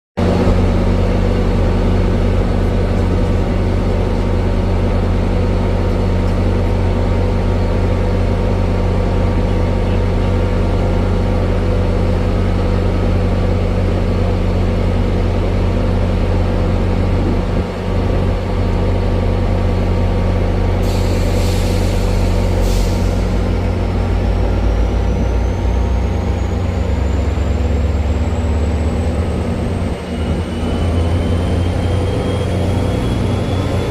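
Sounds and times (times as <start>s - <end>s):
locomotive engine idling: 0.2s - 33.9s
air brake hiss: 20.8s - 23.5s.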